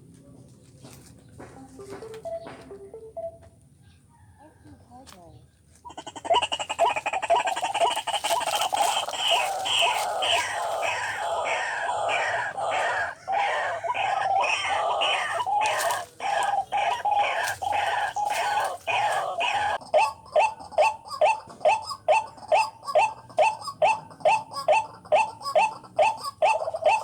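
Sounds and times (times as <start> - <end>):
waterhen calling: 5.9 - 27.0.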